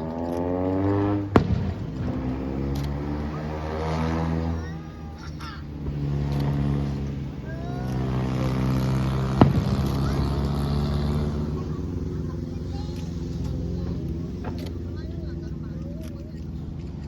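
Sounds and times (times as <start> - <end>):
firework bang: 1.2 - 2.7, 9.3 - 10.4.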